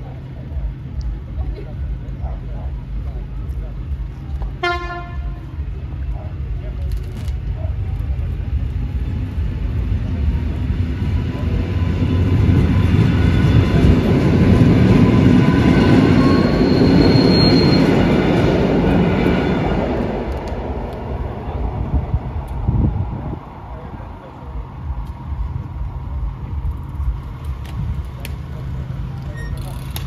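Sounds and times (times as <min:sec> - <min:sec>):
electric train rumbling past: 0:00.0 - 0:30.0.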